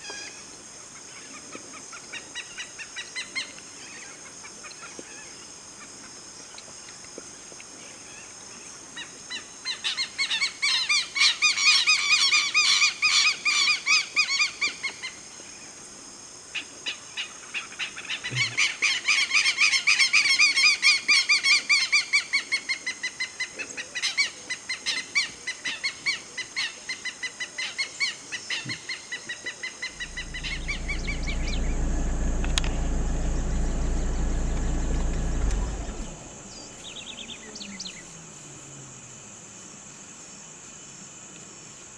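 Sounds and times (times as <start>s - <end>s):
low steady rumble: 30.0s - 37.4s.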